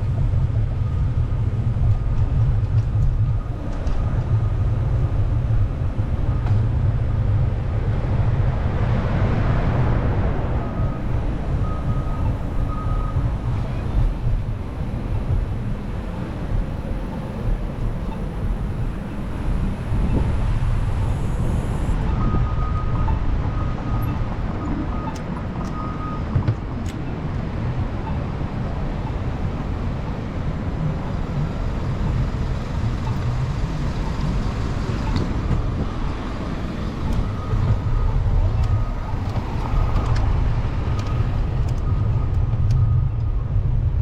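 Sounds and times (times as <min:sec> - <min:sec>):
city street traffic: 0:00.0 - 0:44.0.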